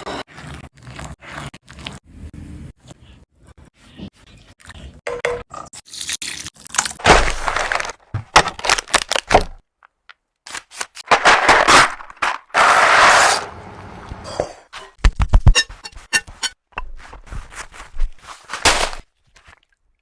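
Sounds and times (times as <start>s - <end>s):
food preparation cracks and scrapes: 5.8s - 9.6s, 15.0s - 19.7s.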